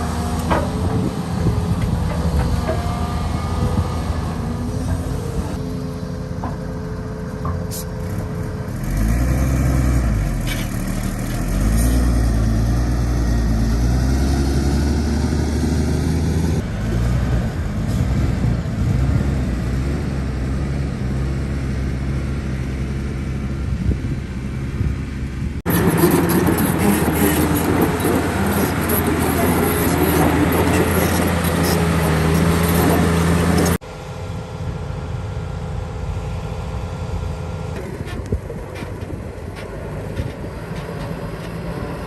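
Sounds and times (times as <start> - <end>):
heavy diesel engines working: 0.0 - 42.0
harsh machine noise: 25.7 - 33.8.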